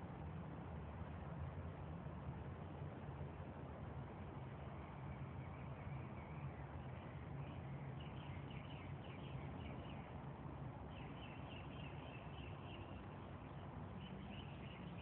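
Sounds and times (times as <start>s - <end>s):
faint bird chirps: 10.9s - 15.0s.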